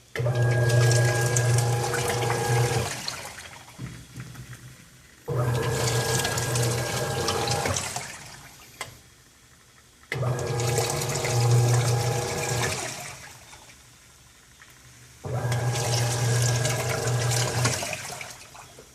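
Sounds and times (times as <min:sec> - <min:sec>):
washing machine motor churning: 0:00.0 - 0:03.9, 0:05.3 - 0:08.6, 0:10.1 - 0:13.4, 0:15.2 - 0:18.6.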